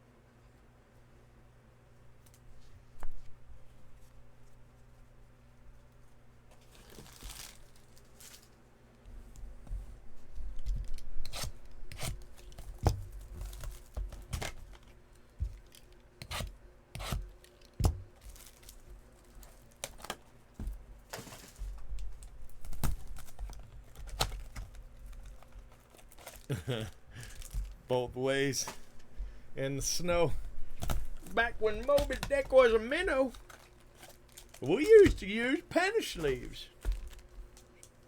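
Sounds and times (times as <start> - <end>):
wrappers tearing open: 6.7 - 8.6, 17.4 - 20.2, 22.5 - 27.8, 30.8 - 35.1
cards tapping and clicking: 30.2 - 35.4.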